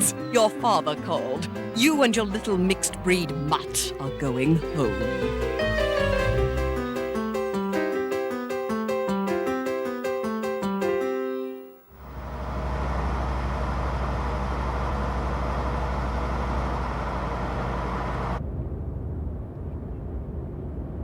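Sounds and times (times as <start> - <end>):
piano music cue: 0.0 - 11.8
car engine and road rumble: 12.0 - 21.0.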